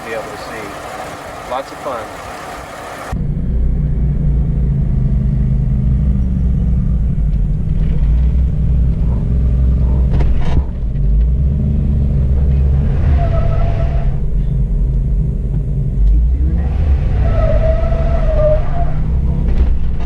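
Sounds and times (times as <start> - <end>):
engine rumbling under load: 0.0 - 3.2.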